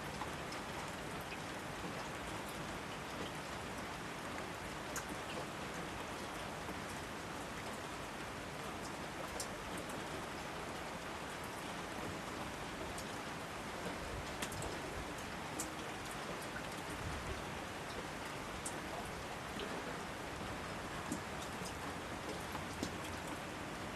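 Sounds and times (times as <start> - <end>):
steady rain hiss: 0.0 - 23.9.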